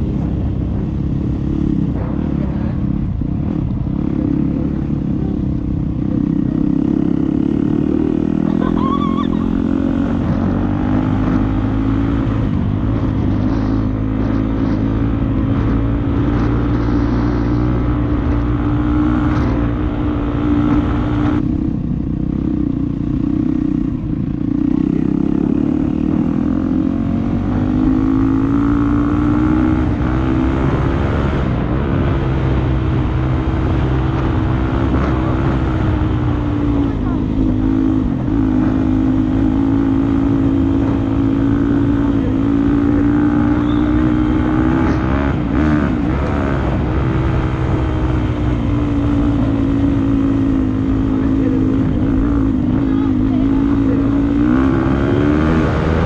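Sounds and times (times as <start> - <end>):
dirt bike engine revving: 24.7 - 56.0.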